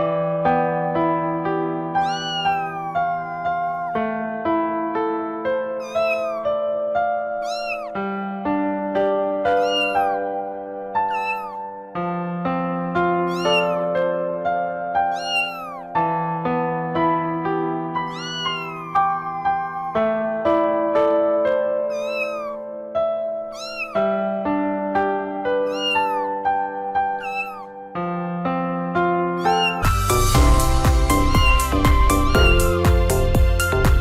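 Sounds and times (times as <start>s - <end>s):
electric piano music: 0.0s - 34.0s
cat meowing: 2.0s - 4.2s, 5.7s - 6.7s, 7.3s - 8.0s, 9.5s - 10.4s, 11.0s - 11.9s, 13.1s - 16.0s, 18.0s - 20.4s, 21.8s - 22.7s, 23.4s - 24.4s, 25.6s - 27.9s, 29.4s - 33.4s.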